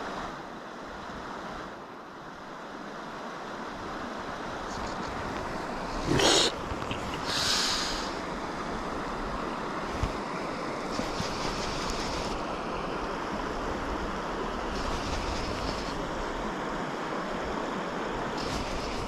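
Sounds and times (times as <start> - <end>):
stream water rushing: 0.0 - 19.0
brief hiss: 4.7 - 8.2.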